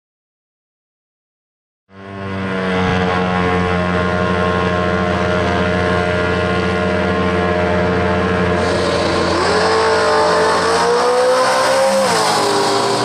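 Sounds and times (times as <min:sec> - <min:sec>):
drag car engines idling: 0:03.9 - 0:10.4.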